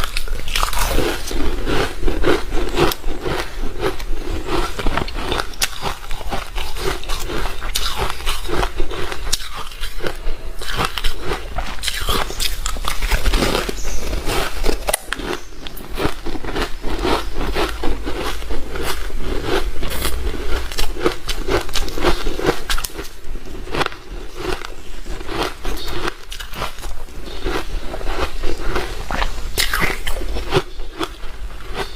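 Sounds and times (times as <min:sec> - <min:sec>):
ice crunching while chewed: 0:00.0 - 0:31.9.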